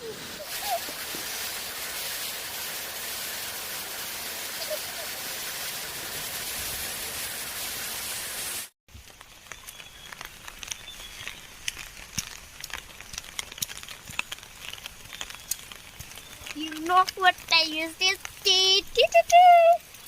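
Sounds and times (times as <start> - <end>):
heavy rain hissing: 0.0 - 20.0
drips and light taps: 9.2 - 20.0.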